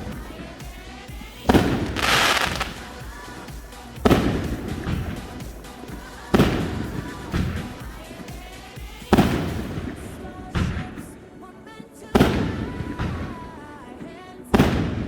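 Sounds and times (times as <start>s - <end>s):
music: 0.0s - 15.0s
fireworks bursting: 1.5s - 3.0s.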